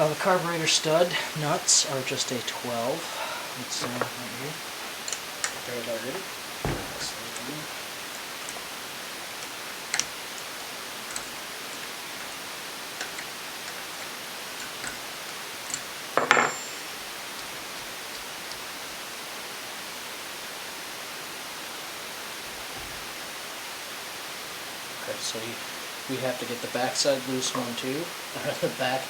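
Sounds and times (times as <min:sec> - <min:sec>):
steady hiss: 0:00.0 - 0:29.0
hand tools clicking on metal: 0:13.0 - 0:16.0
metallic clatter and ring: 0:16.2 - 0:17.0.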